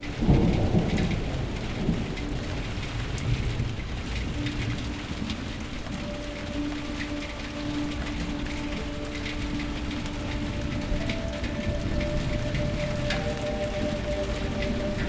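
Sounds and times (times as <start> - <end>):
rain crackles: 0.0 - 15.0
thunder rumble: 0.0 - 15.0
low sustained note: 4.6 - 15.0.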